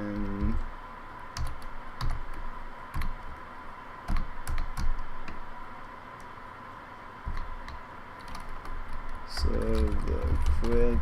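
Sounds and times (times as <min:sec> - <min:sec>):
keyboard keystrokes clacking: 0:01.4 - 0:03.4, 0:04.1 - 0:05.4, 0:07.3 - 0:11.0.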